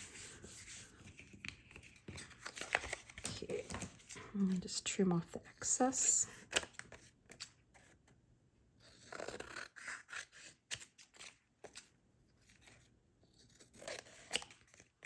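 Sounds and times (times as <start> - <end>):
paper rustling: 0.0 - 4.8
scissors snipping paper: 13.5 - 15.0.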